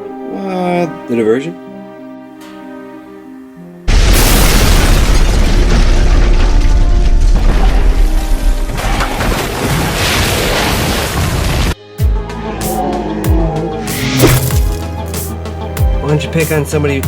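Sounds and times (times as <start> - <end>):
music: 0.0 - 4.1, 5.0 - 9.6, 11.8 - 17.0
explosion boom and rumble: 3.9 - 11.8.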